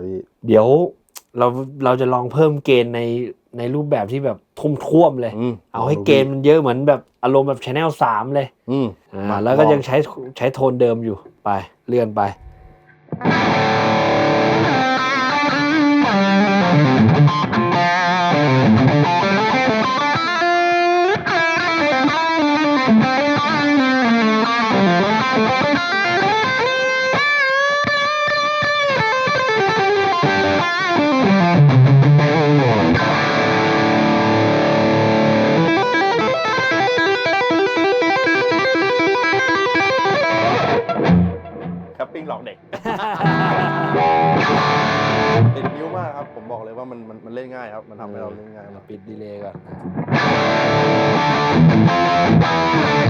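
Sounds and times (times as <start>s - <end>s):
distorted electric guitar: 12.4s - 42.0s, 42.7s - 46.4s, 49.6s - 53.0s.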